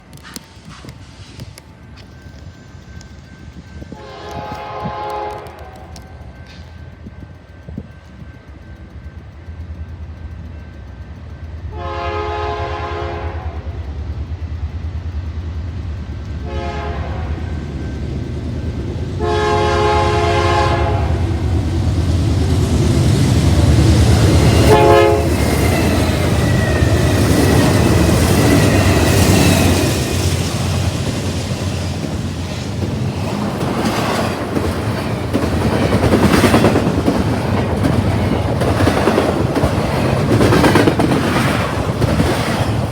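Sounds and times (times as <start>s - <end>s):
locomotive horn blasts: 3.9s - 6.2s, 11.7s - 13.7s, 16.4s - 17.6s, 19.2s - 21.5s, 24.4s - 26.3s.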